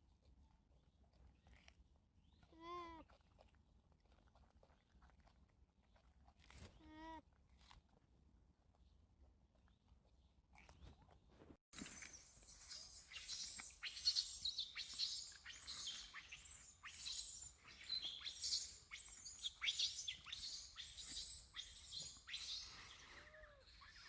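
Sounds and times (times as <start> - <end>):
high-pitched chirping calls: 11.8 - 24.0.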